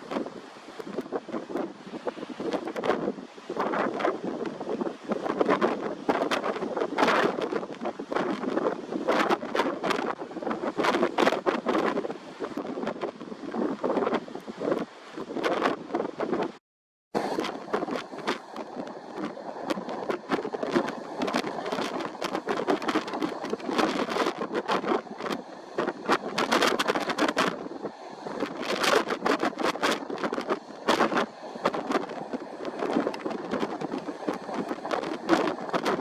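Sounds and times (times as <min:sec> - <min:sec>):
wind buffeting microphone: 0:00.0 - 0:16.6, 0:17.2 - 0:36.0.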